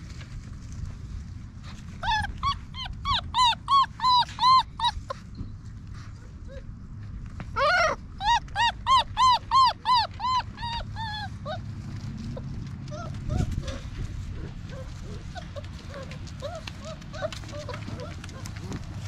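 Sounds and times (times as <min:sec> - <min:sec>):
puppy whining and yelping: 0:01.7 - 0:05.4, 0:07.5 - 0:19.0
faint puppy whimpers: 0:02.0 - 0:05.3, 0:06.1 - 0:06.8, 0:07.5 - 0:18.9.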